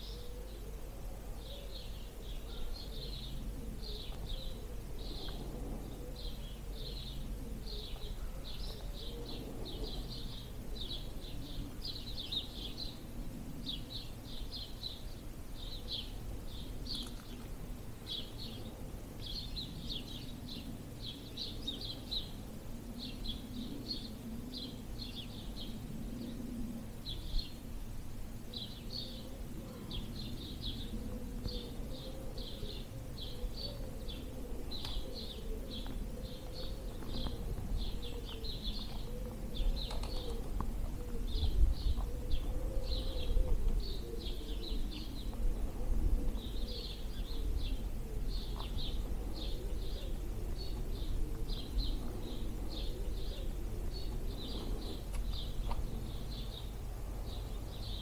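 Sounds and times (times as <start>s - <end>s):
songbirds chirping: 0.0s - 58.0s
wind rumble on microphone: 0.9s - 58.0s.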